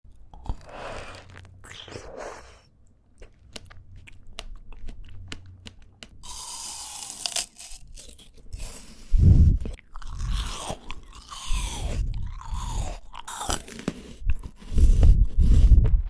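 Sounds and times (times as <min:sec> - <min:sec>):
wet mouth clicks: 0:00.1 - 0:06.2
chewing fruit with moist crunching: 0:00.1 - 0:16.0.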